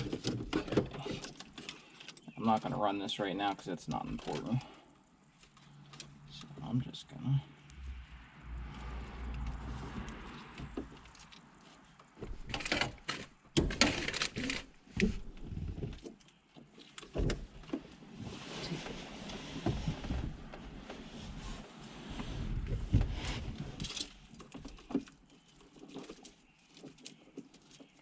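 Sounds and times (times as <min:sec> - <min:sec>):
rustling plastic parts: 0:00.0 - 0:02.8, 0:09.3 - 0:18.0, 0:23.1 - 0:28.0.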